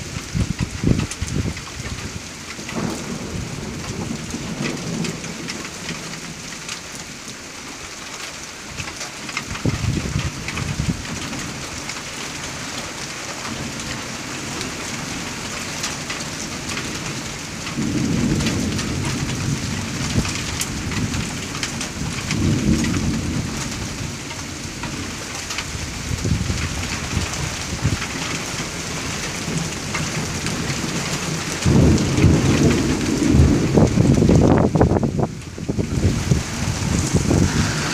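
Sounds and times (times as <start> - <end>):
thunder rumbling: 0.0 - 6.3, 16.7 - 37.9
rain falling: 0.0 - 37.9.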